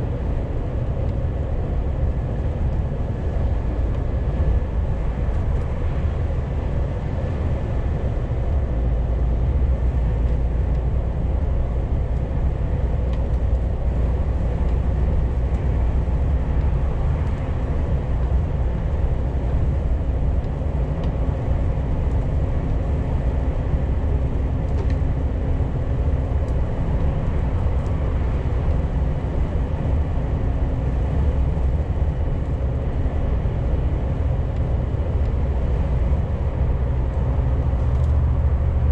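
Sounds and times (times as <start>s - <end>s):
road and tyre noise: 0.0s - 38.9s
truck engine drone: 0.0s - 38.9s.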